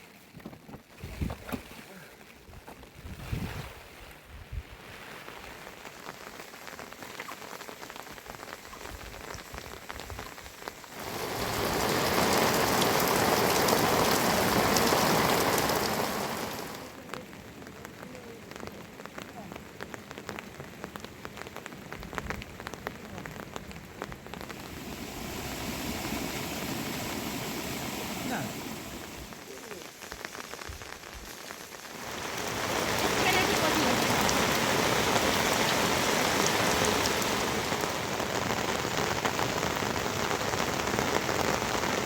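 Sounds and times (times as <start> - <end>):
heavy rain falling: 4.6 - 42.0.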